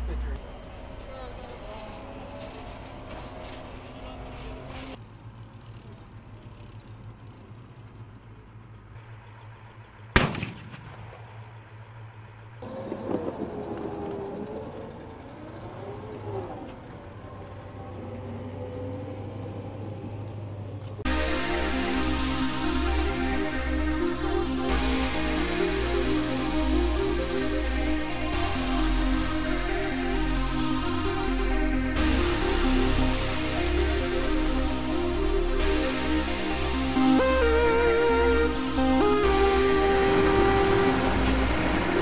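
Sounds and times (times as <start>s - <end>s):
low engine drone: 0.0s - 42.0s
tracked vehicle with wavering whine: 0.0s - 42.0s
loud gunshot: 10.1s - 11.4s.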